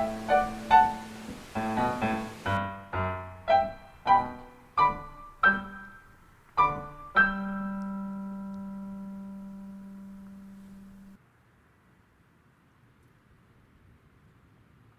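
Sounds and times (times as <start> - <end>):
piano notes and chord: 0.0 - 11.2.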